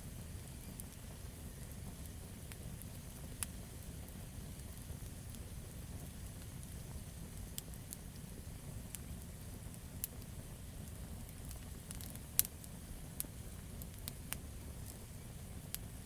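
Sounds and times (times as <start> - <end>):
low rumble of flames: 0.0 - 16.0
campfire pops and snaps: 0.4 - 16.0.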